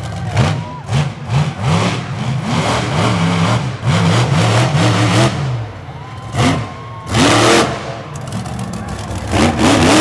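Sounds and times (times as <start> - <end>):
truck engine revving: 0.0 - 10.0.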